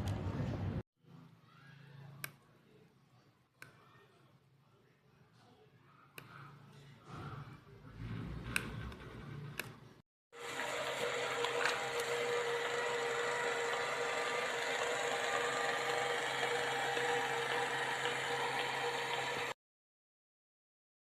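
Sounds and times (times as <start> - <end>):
motor whirring: 10.4 - 19.6.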